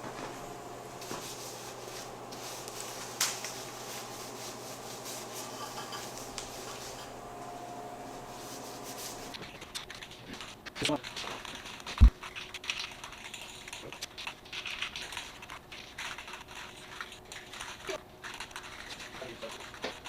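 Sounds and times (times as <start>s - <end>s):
low hum: 0.0s - 9.4s
rag wiping metal: 0.0s - 9.4s.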